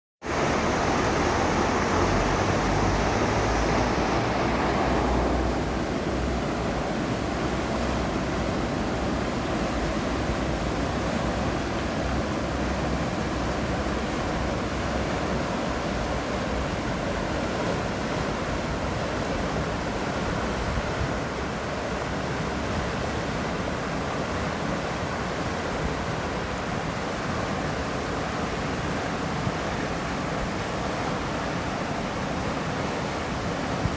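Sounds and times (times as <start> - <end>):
mountain river flowing: 0.2 - 33.9.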